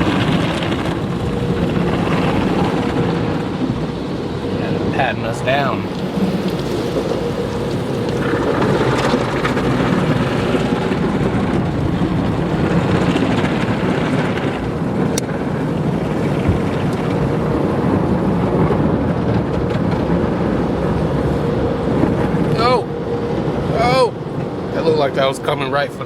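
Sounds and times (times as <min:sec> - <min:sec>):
car wash brushes and water spray: 0:00.0 - 0:18.4.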